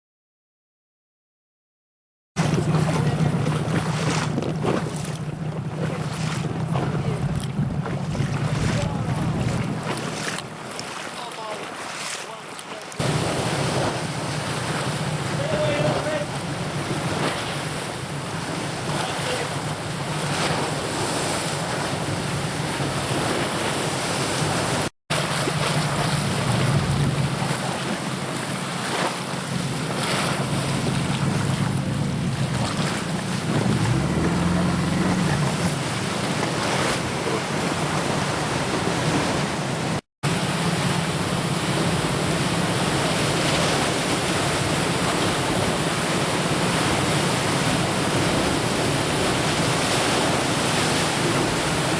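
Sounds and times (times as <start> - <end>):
wind on microphone: 2.4 - 10.5, 19.9 - 28.4
sea waves: 2.4 - 51.9.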